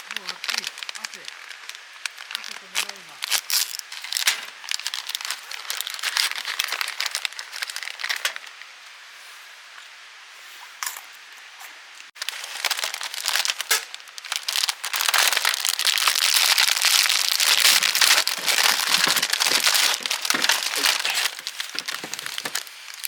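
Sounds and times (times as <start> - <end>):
sizzling hiss with crackles: 0.0 - 17.1.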